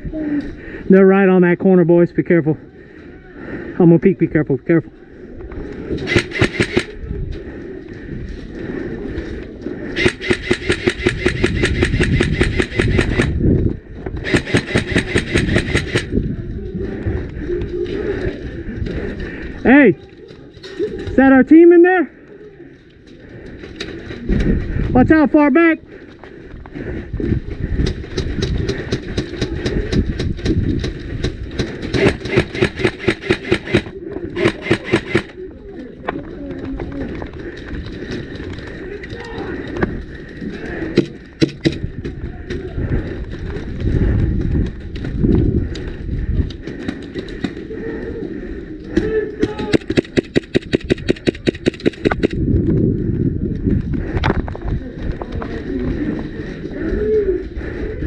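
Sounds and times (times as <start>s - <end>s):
airsoft rifle firing full-auto: 6.1s - 6.9s, 10.0s - 13.3s, 14.2s - 16.1s, 31.9s - 35.4s, 49.6s - 52.3s.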